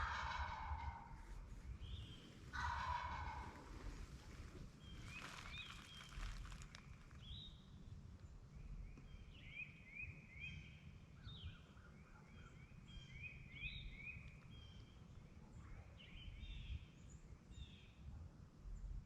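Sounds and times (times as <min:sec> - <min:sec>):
rustle: 0:00.0 - 0:08.3
low steady rumble: 0:00.0 - 0:09.4.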